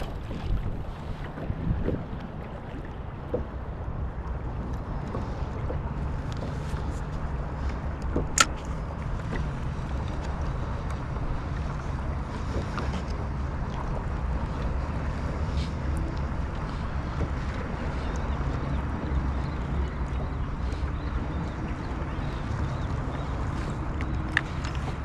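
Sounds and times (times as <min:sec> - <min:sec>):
water lapping against a hull: 0:00.0 - 0:25.0
sharp click: 0:08.2 - 0:08.7.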